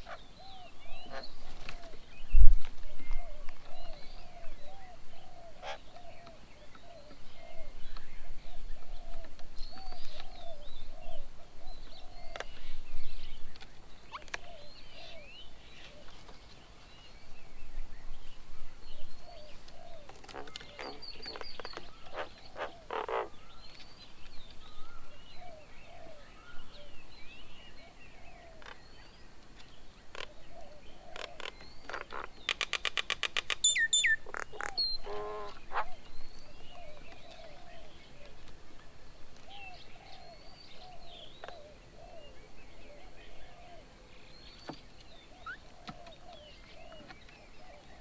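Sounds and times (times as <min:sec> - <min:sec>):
birds chirping and whistling: 0:33.6 - 0:38.4, 0:39.5 - 0:48.0.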